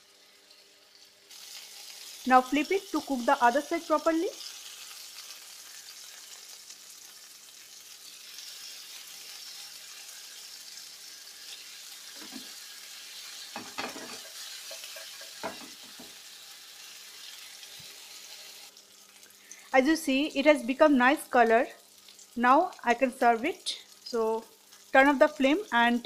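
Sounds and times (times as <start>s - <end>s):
food sizzling in frying pan: 0.0s - 26.0s.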